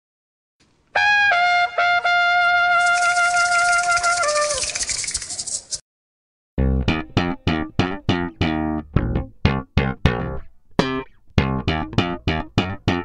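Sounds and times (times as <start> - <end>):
intro music notes: 6.6 - 13.0.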